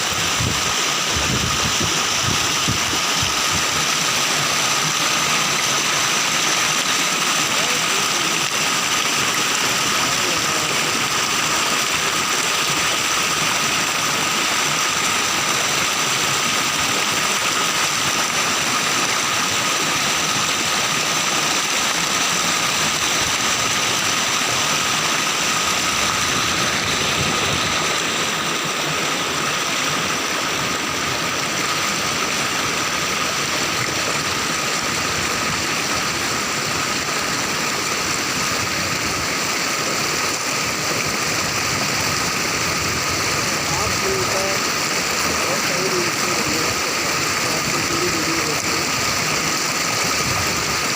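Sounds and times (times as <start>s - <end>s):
waterfall rushing water: 0.0s - 50.9s.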